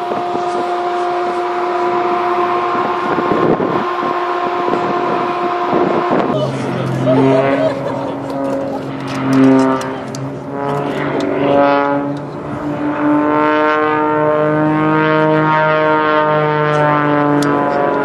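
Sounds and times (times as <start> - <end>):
propeller aircraft engines droning: 0.0 - 18.0.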